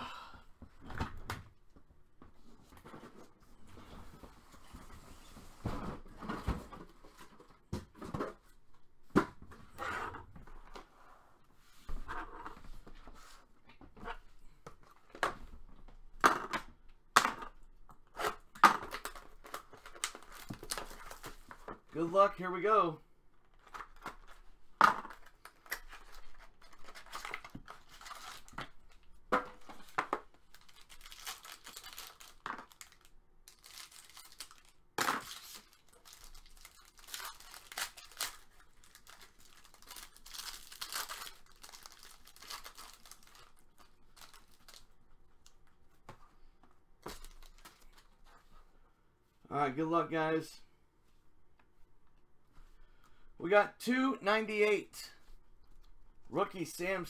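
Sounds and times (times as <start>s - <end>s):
packaging tearing and crinkling: 25.1s - 29.0s, 30.4s - 44.9s.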